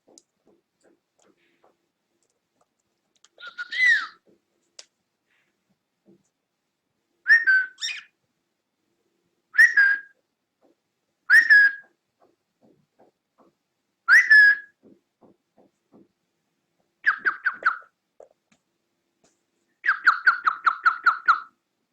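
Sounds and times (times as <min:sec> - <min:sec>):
faint light ticks: 0:00.1 - 0:03.4
cockatiel whistling: 0:07.3 - 0:08.1, 0:09.6 - 0:10.1, 0:11.3 - 0:11.8, 0:14.1 - 0:14.7, 0:17.0 - 0:17.9.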